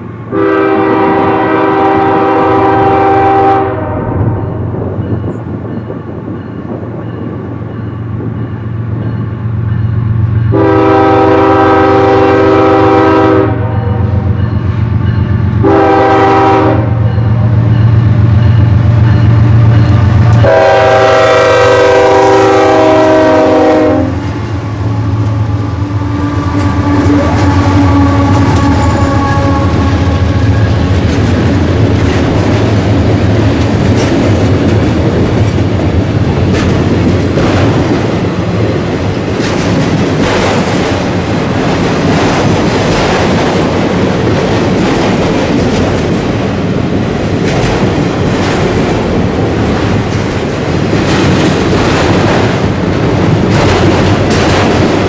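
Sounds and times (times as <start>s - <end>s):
train wheels rumbling: 0.0s - 55.0s
locomotive air horn blasts: 0.3s - 4.4s, 10.5s - 14.3s, 15.6s - 17.4s, 20.3s - 30.8s
wheels clickety-clack: 29.8s - 55.0s.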